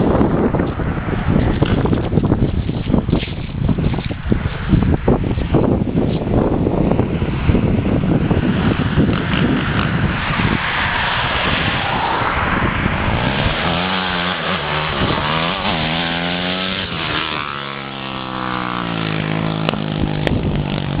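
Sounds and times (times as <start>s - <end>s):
loud rushing noise: 4.2s - 21.0s
dirt bike engine revving: 8.1s - 21.0s.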